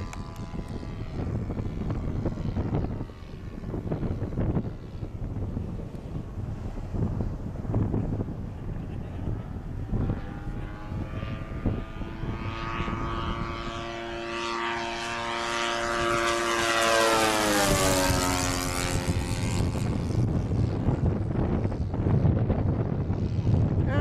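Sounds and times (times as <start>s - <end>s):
model plane engine flying past: 0.0s - 24.0s
wind rumbling on microphone: 0.0s - 24.0s.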